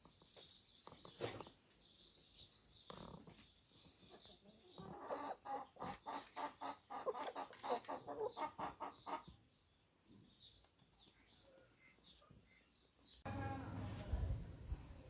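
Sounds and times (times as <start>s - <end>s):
chicken clucking: 3.2s - 9.4s.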